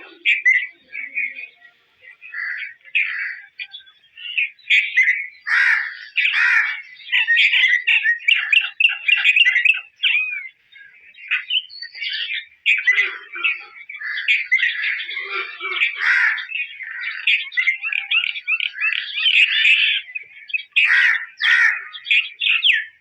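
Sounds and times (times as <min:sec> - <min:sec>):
bird singing chirps and whistles: 0:07.1 - 0:13.0.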